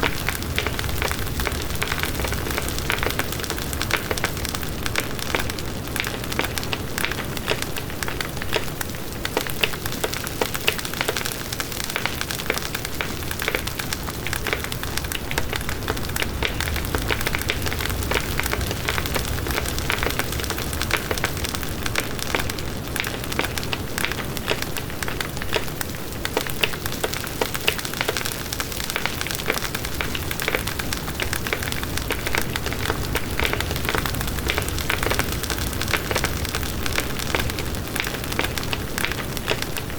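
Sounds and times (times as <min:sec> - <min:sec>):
campfire burning: 0:00.0 - 0:39.9
crackles and pops of burning wood: 0:00.0 - 0:39.9.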